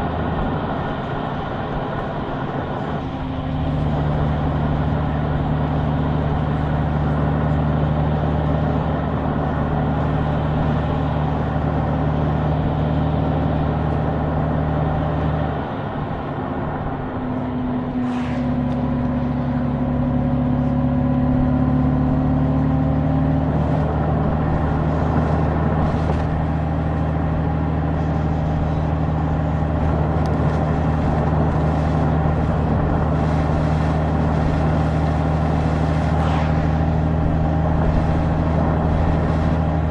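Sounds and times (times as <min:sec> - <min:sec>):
road and wind noise: 0:00.0 - 0:39.9
motorcycle engine running: 0:18.7 - 0:39.9.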